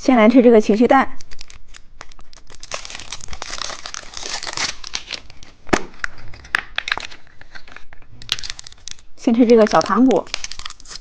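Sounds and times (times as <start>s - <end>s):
candy wrapper crinkling: 1.1s - 11.0s
packaging clicks and snaps: 1.1s - 11.0s.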